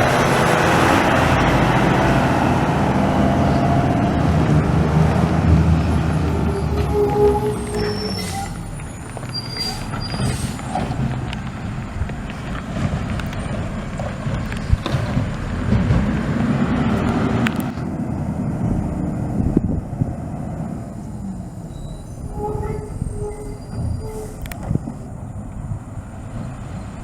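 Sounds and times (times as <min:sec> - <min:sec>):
diesel engine running: 0:00.0 - 0:27.0
high squeaks: 0:06.1 - 0:11.2, 0:21.6 - 0:25.2.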